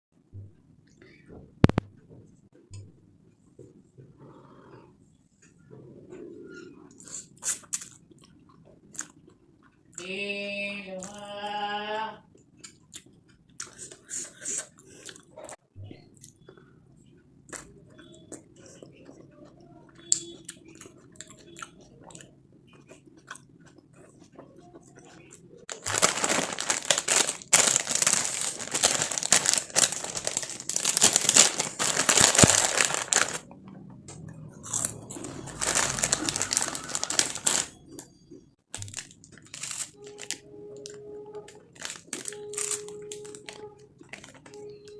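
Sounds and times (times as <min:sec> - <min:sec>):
person chewing and biting food: 0:07.0 - 0:09.8, 0:12.4 - 0:15.5, 0:20.0 - 0:33.4, 0:34.5 - 0:37.8.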